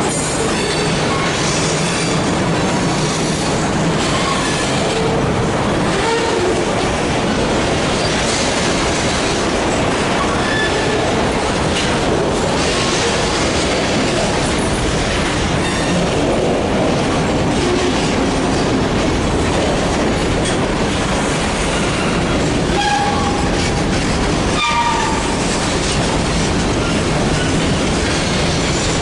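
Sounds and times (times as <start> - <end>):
railroad cars rolling past: 0.0 - 29.0
wheels clattering over rails: 0.0 - 29.0.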